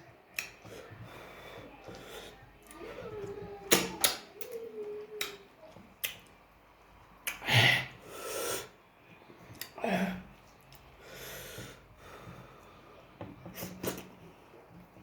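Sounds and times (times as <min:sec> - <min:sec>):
breathy sniff: 0:07.4 - 0:08.8, 0:11.0 - 0:12.9.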